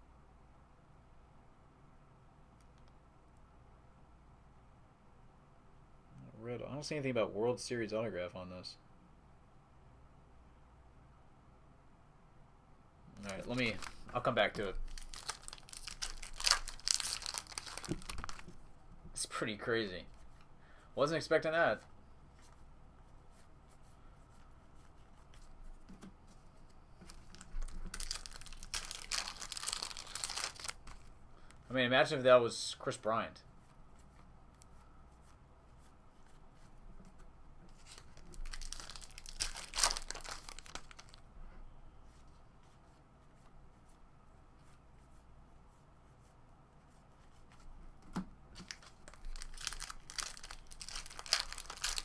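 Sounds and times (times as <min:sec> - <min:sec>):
foil wrapper crinkling and tearing: 0:13.2 - 0:18.6, 0:27.0 - 0:31.1, 0:37.8 - 0:41.2, 0:48.6 - 0:52.0.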